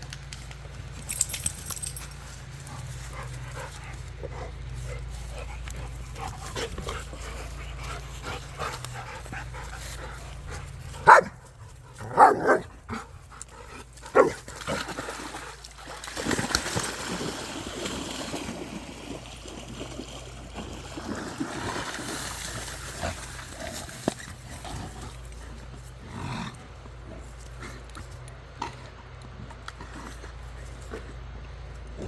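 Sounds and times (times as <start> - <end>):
dog barking: 11.0 - 11.4, 12.0 - 12.7, 14.2 - 14.4.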